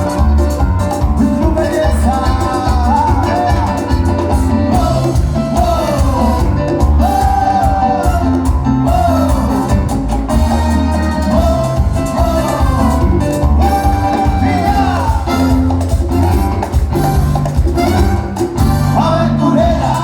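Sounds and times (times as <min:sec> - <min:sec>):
band playing cuarteto music: 0:00.0 - 0:20.0
bouncing bass beat: 0:00.0 - 0:20.0
person singing: 0:01.0 - 0:10.0, 0:11.1 - 0:16.0, 0:18.8 - 0:20.0.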